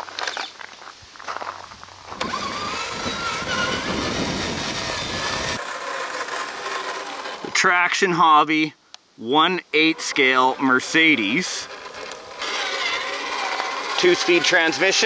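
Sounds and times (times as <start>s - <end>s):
electric motor whine: 2.1s - 7.6s, 9.6s - 15.0s
geared drivetrain rattle: 2.1s - 7.6s, 9.8s - 15.0s.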